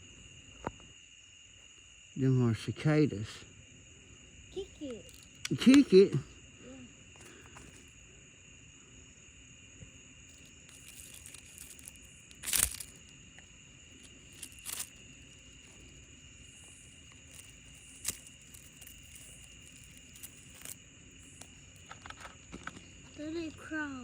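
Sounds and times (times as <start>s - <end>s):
insect chorus: 0.0s - 24.0s
crackling crunching rustles: 4.6s - 6.3s, 7.1s - 8.1s, 9.8s - 24.0s.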